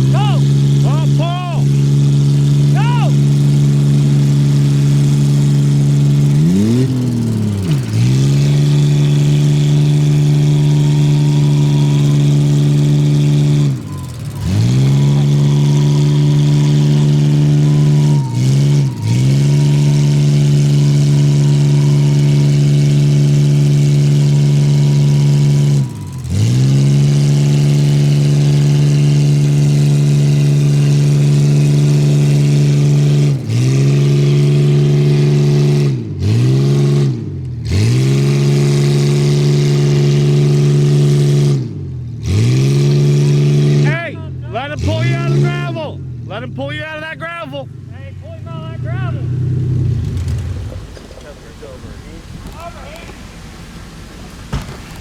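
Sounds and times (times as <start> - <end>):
truck engine revving hard: 0.0 - 55.0.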